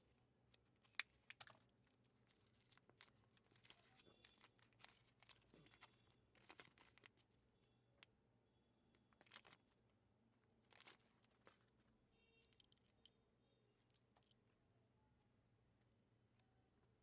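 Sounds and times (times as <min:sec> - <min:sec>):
foil wrappers crinkling: 0:00.6 - 0:07.4, 0:09.0 - 0:09.8, 0:10.6 - 0:11.8.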